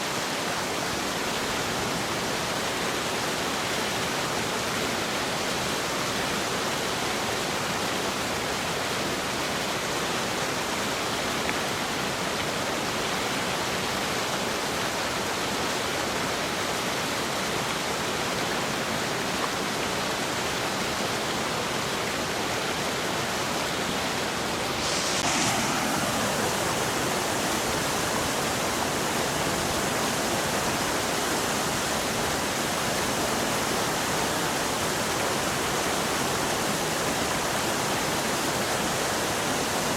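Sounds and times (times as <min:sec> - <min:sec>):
fast-flowing water rushing: 0:00.0 - 0:39.9.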